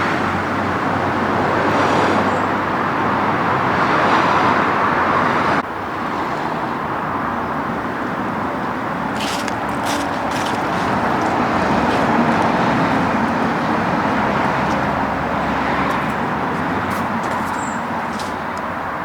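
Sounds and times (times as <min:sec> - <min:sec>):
road traffic noise: 0:00.0 - 0:19.0
vehicle passing: 0:08.5 - 0:19.0.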